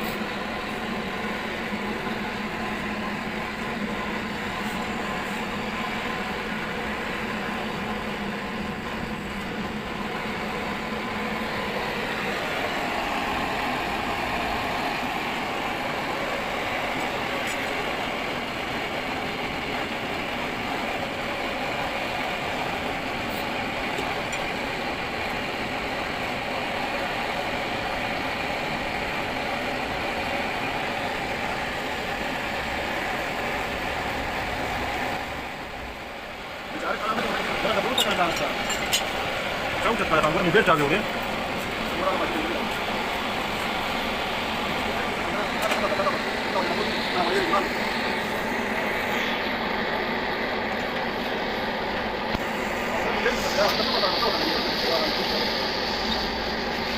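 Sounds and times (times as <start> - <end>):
engine running: 0.0 - 56.9.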